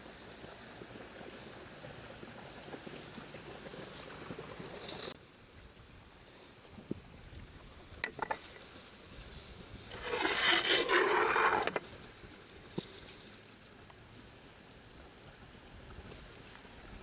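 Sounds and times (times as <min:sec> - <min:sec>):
scraping rubbing sound: 0:09.9 - 0:11.9.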